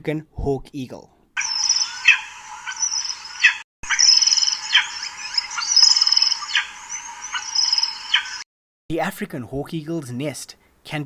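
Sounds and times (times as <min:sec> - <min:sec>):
eagle calling: 0:01.4 - 0:08.4
fast high trilling: 0:01.4 - 0:08.4.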